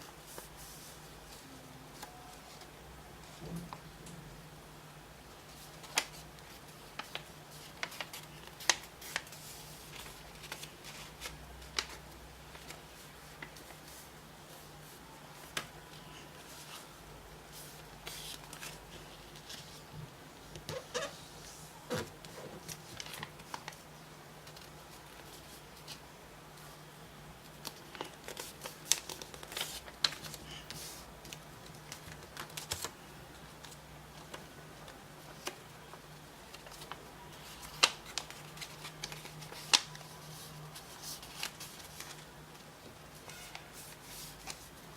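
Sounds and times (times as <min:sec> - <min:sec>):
paper being folded and creased: 0:05.5 - 0:16.8, 0:17.5 - 0:19.8, 0:22.2 - 0:23.8, 0:27.6 - 0:32.9, 0:33.6 - 0:42.3.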